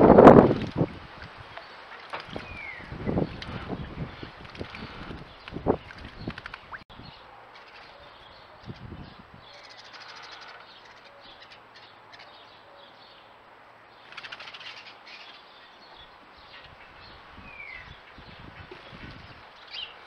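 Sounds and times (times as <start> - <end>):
wings fluttering: 0.0 - 6.8, 14.1 - 14.9
steady outdoor hiss: 0.0 - 20.0
small birds chirping: 0.7 - 20.0.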